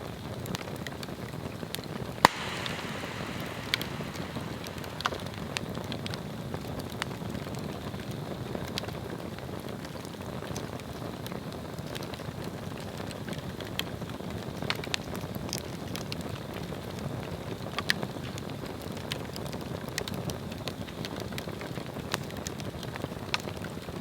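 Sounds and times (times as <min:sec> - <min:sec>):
flame hissing: 0:02.2 - 0:08.4
burning wood crackling: 0:02.2 - 0:08.8.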